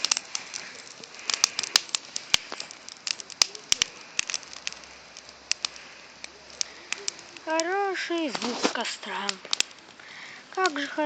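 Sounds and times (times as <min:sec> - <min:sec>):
bonfire crackling and popping: 0:00.0 - 0:11.0.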